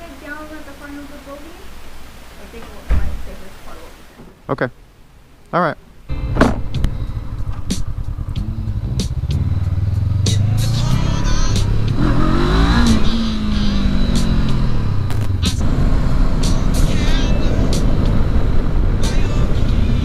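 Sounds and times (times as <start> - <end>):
motorcycle engine accelerating: 6.1 - 20.0.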